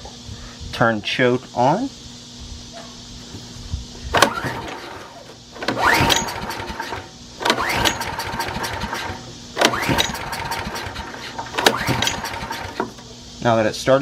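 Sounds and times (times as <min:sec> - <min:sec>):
pull starter whirring: 0:04.1 - 0:13.1
small generator engine running: 0:04.1 - 0:13.4.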